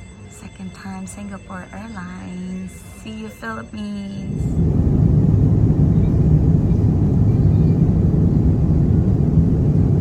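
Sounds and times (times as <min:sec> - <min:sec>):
jet cabin engine rumble: 0:04.2 - 0:10.0.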